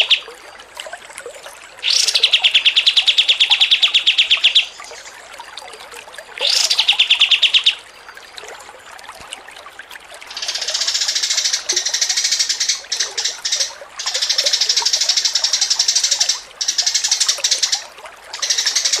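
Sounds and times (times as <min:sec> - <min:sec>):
songbird fast chatter: 0:10.3 - 0:17.8, 0:18.4 - 0:19.0.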